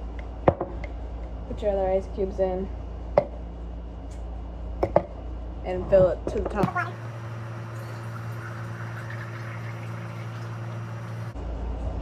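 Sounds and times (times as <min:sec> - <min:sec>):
electric hum: 0:05.6 - 0:11.4
liquid pouring into cup of ice: 0:06.6 - 0:11.4.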